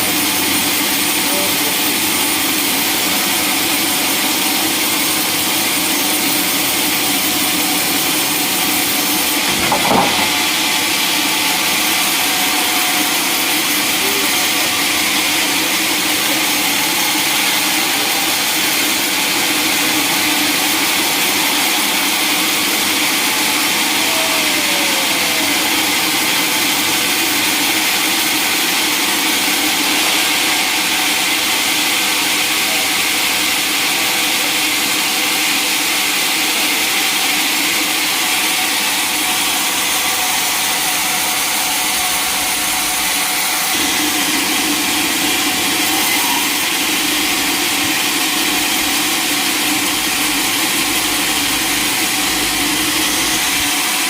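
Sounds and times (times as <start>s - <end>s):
sawmill machinery running: 0.0s - 54.0s
knock: 9.4s - 10.6s.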